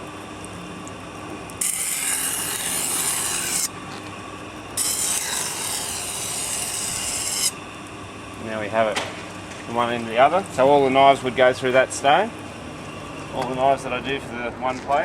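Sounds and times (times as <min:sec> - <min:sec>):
knife grinding on sharpening stone: 0:01.6 - 0:03.7, 0:04.8 - 0:07.5.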